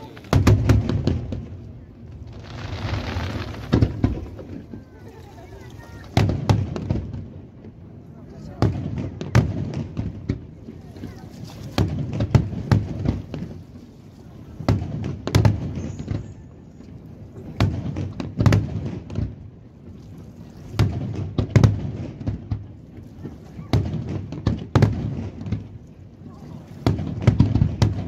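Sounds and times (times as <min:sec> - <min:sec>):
low rolling rumble: 0:00.0 - 0:17.4
firework shells bursting: 0:02.3 - 0:04.6.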